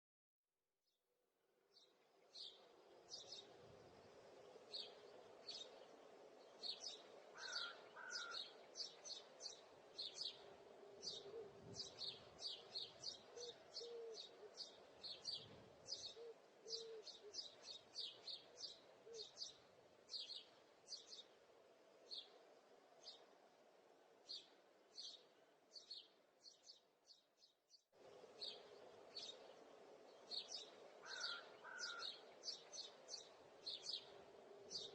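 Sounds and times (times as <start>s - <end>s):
small birds chirping: 1.6s - 34.9s.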